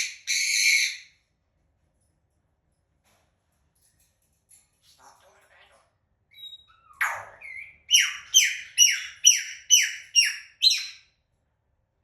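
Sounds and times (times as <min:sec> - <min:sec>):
parrot squawking: 0:06.3 - 0:11.0.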